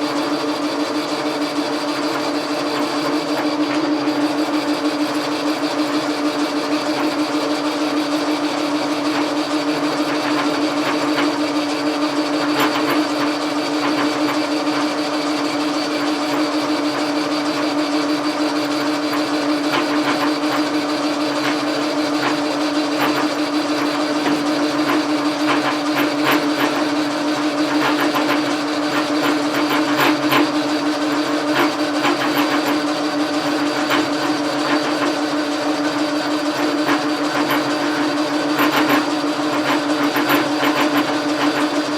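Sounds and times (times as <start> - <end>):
lathe humming: 0.0 - 41.9
clicks and scratchy noises: 27.7 - 41.9.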